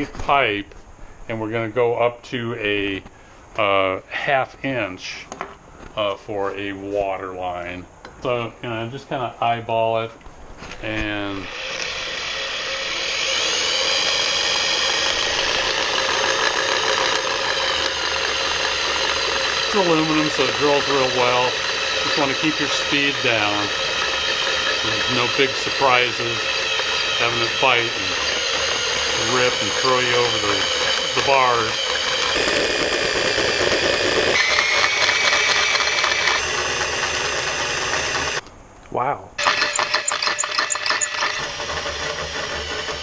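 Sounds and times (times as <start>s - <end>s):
electric drill boring into metal: 10.8s - 38.4s, 39.4s - 43.0s
high squeal: 10.9s - 38.4s, 39.4s - 43.0s.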